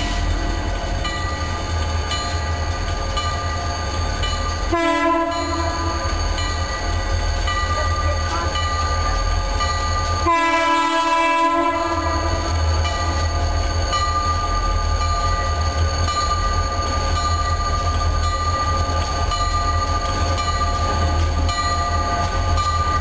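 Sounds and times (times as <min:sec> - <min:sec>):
train rumbling: 0:00.0 - 0:23.0
locomotive air horn blasts: 0:04.7 - 0:05.8, 0:10.2 - 0:12.4.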